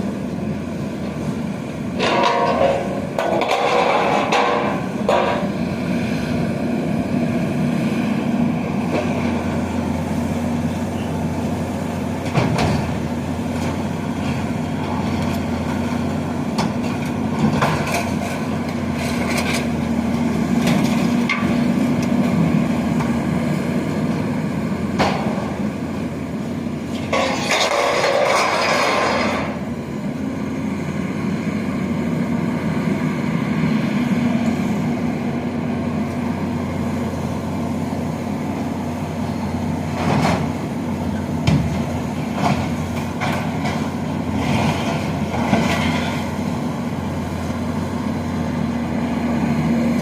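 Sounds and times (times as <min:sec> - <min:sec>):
diesel demolition machinery running: 0:00.0 - 0:50.0
debris crashing and crunching: 0:27.0 - 0:29.6.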